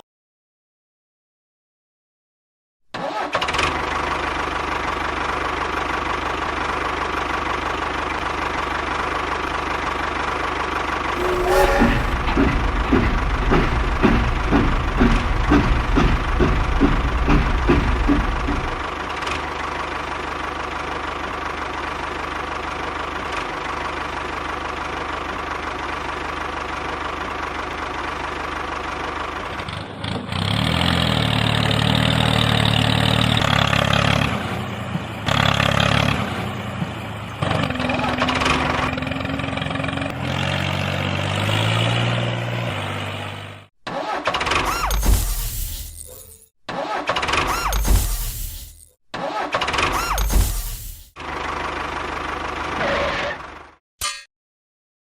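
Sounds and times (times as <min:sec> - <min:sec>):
small construction vehicle engine: 0:03.0 - 0:45.0, 0:51.2 - 0:53.8.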